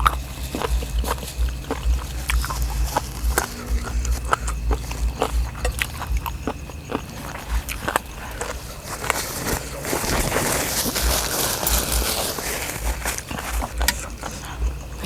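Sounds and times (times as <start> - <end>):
low rumble: 0.0 - 8.7
chewing and utensil clicks: 0.0 - 15.0.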